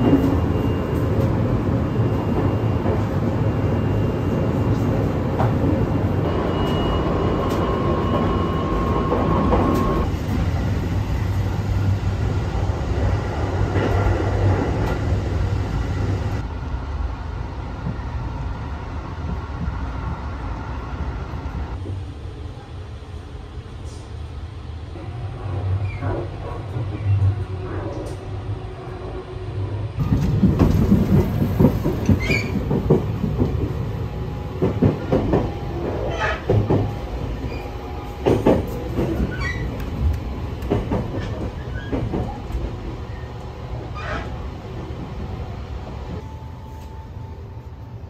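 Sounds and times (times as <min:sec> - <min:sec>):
train low rumble: 0:00.0 - 0:48.0
wheels knocking and clacking: 0:30.0 - 0:33.8.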